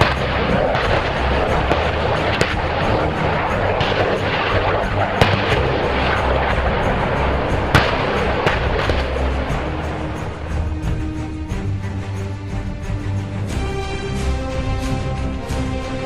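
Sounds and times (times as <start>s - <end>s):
sharp bangs: 0.0s - 11.9s
dense continuous rumble: 0.0s - 15.9s
music: 0.0s - 16.0s.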